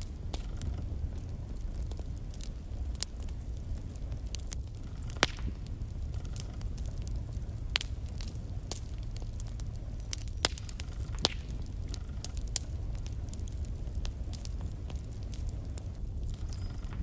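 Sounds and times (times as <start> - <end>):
logs burning with crackles and pops: 0.0 - 17.0.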